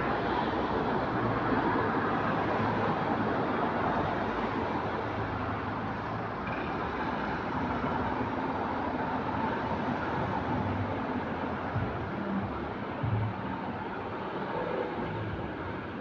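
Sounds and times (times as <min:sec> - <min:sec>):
bus engine drone: 0:00.0 - 0:16.0
road noise: 0:00.0 - 0:16.0.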